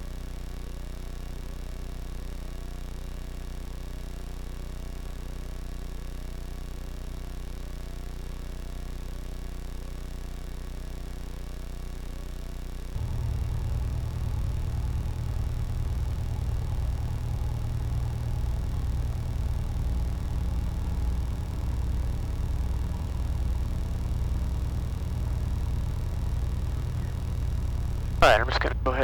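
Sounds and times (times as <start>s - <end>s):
light aircraft piston engine droning: 12.8s - 29.0s.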